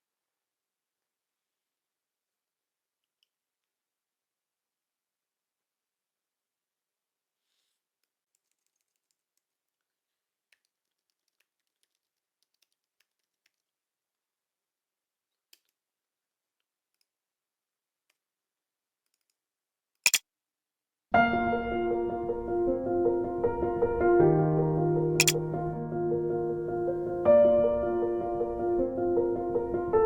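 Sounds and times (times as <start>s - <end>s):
sharp clicks or knocks: 20.0s - 20.2s.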